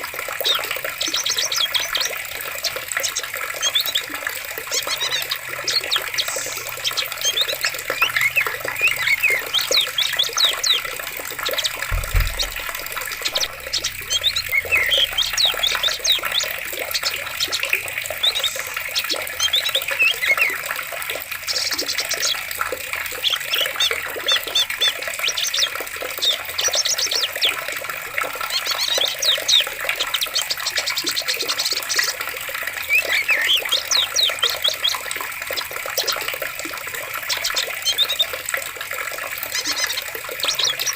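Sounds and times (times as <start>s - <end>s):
running water: 0.0s - 40.9s
small birds chirping: 0.0s - 40.9s
low thump: 11.8s - 15.1s.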